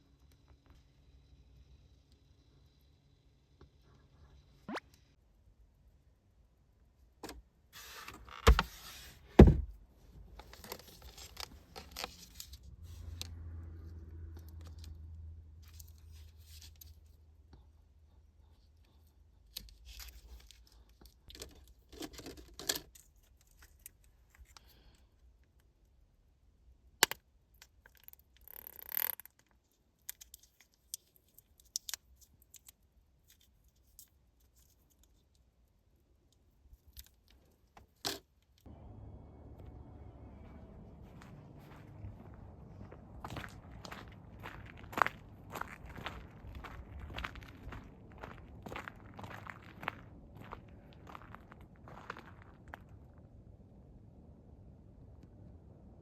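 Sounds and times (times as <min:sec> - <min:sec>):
low hum: 0:38.7 - 0:56.0.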